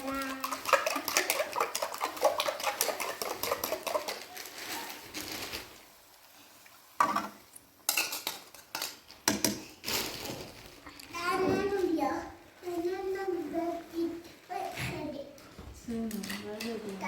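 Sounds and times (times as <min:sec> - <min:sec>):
metal utensils clinking on cookware: 0:00.0 - 0:04.5, 0:07.0 - 0:09.7, 0:16.0 - 0:17.0.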